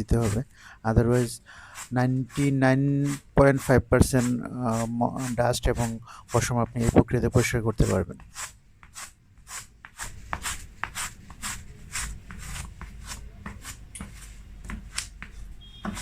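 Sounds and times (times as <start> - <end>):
masking tape rubbing on carpet: 0.0 - 16.0.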